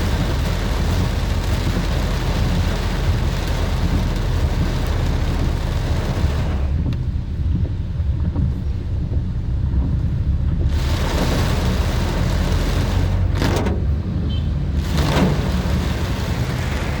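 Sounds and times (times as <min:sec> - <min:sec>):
tyres hissing on wet road: 0:00.0 - 0:07.0, 0:10.6 - 0:17.0
engine and road rumble: 0:00.0 - 0:17.0.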